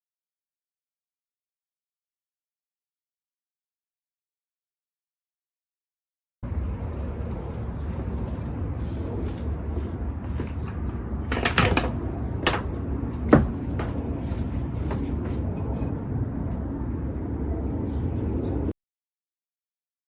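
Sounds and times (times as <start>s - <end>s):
city traffic rumble: 6.4s - 18.7s
knocks and clatters: 9.3s - 15.9s.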